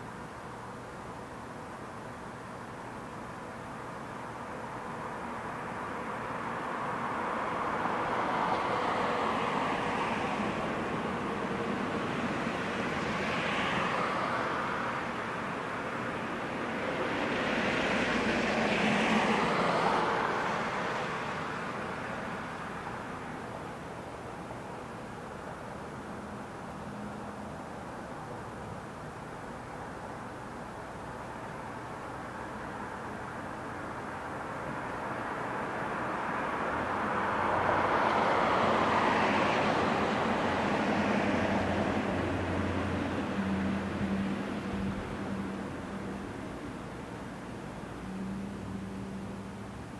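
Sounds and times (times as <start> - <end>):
road vehicle passing by: 6.8 - 23.3, 34.2 - 49.9.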